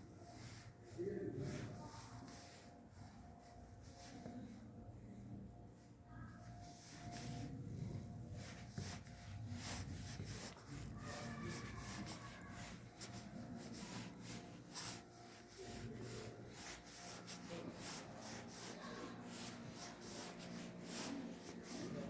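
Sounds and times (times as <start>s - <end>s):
faint distant voices: 0.0s - 22.0s
rubbing against microphone: 6.3s - 22.0s.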